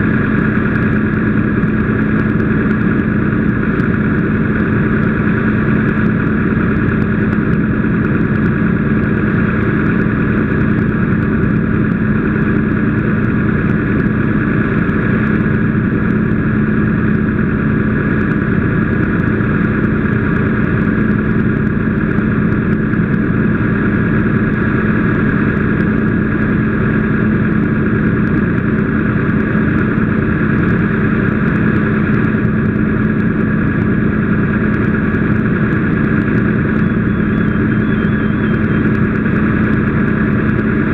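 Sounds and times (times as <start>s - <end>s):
engine humming steadily: 0.0s - 40.9s.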